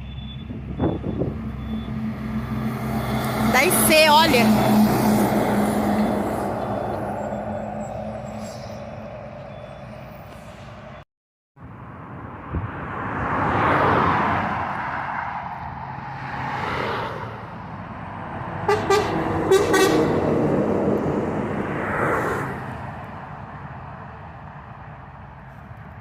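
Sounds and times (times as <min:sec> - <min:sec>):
trucks passing by: 0:00.0 - 0:11.0, 0:11.6 - 0:26.0
horn short toots: 0:18.6 - 0:20.2.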